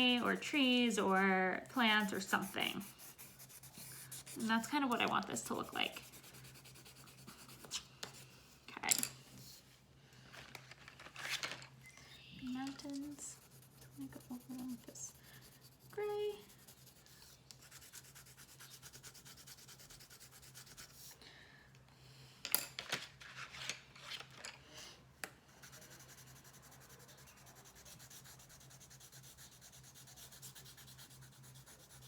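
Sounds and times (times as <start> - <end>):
pencil scratching on paper: 0.0 - 8.3, 13.0 - 21.1, 25.5 - 32.0.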